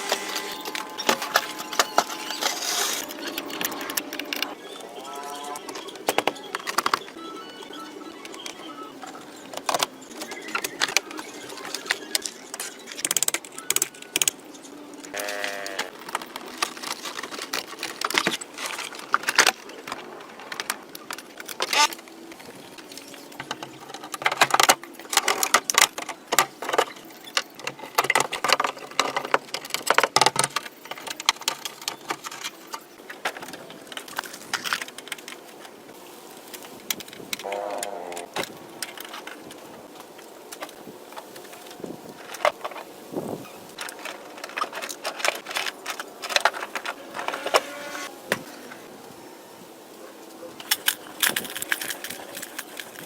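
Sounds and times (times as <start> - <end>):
metal tools clattering: 0.0 - 4.5.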